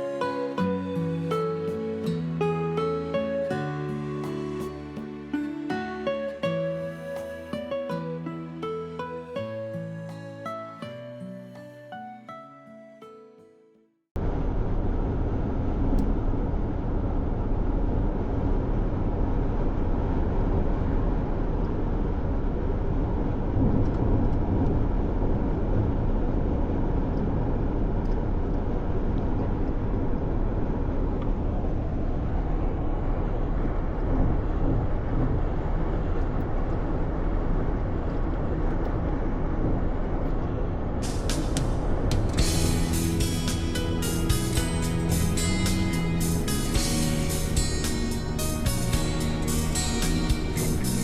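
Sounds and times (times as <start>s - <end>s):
moving vehicle road noise: 14.2s - 51.0s.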